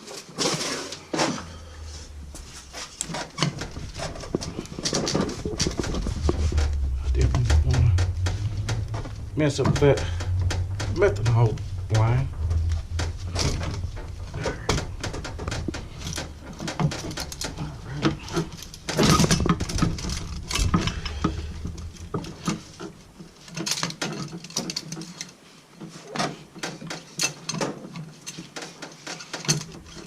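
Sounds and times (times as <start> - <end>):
low hum: 1.0 - 23.8.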